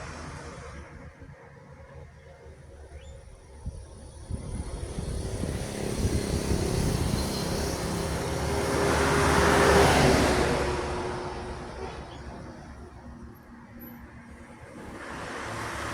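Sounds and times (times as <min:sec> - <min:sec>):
heavy truck driving past: 0:04.7 - 0:15.9.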